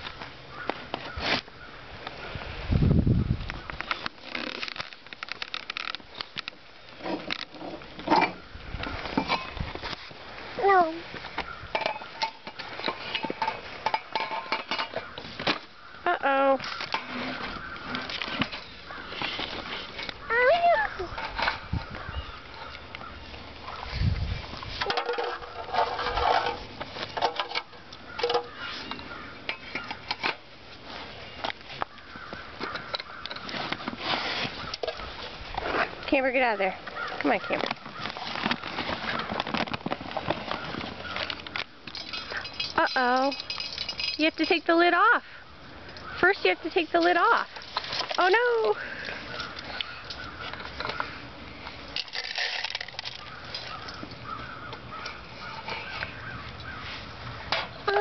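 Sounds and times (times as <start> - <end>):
bird seed rattling: 52.0 - 55.0.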